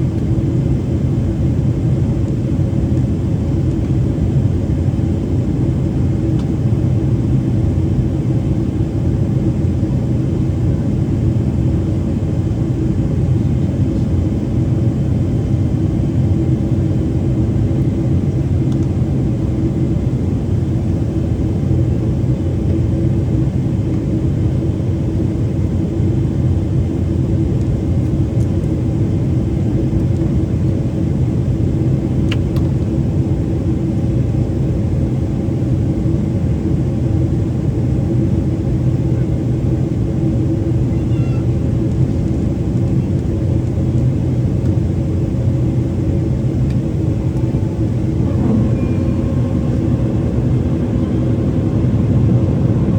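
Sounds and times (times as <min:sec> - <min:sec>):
airflow and jet engine rumble: 0:00.0 - 0:52.9
faint steady hum: 0:46.3 - 0:52.9.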